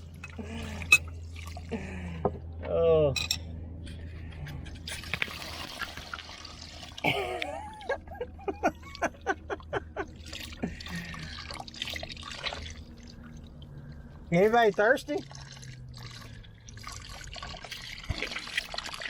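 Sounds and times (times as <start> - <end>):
water draining and splashing: 0.0 - 1.9, 4.9 - 8.0, 10.0 - 19.0
gurgling glugs: 10.2 - 19.0.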